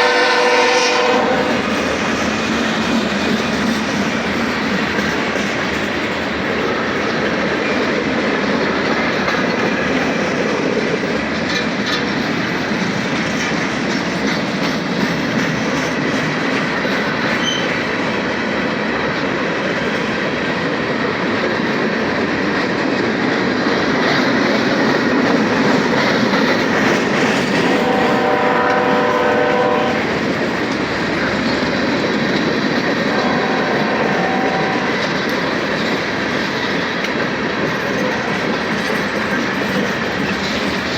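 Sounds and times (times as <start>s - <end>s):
locomotive horn chord: 0.0s - 1.6s, 27.8s - 30.1s, 33.1s - 35.1s
freight train rumbling past: 0.0s - 40.9s
train wheel clatter: 0.0s - 40.9s.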